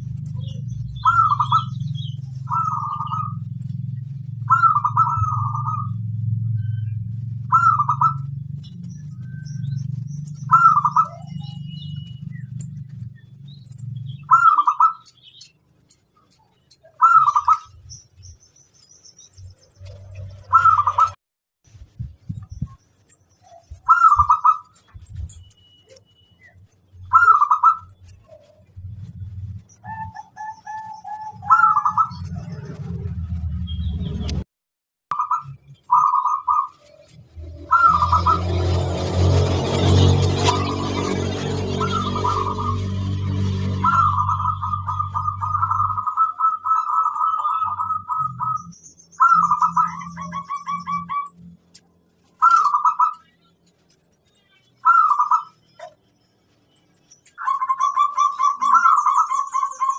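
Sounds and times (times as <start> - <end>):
dove cooing: 0.0 - 3.7, 4.3 - 6.8, 7.4 - 9.4, 10.4 - 11.8, 14.2 - 15.1, 16.9 - 17.8, 19.9 - 21.2, 23.5 - 24.9, 27.1 - 28.8, 29.7 - 33.0, 35.1 - 48.6, 49.2 - 51.4, 52.3 - 53.3, 54.8 - 56.0, 57.3 - 59.9.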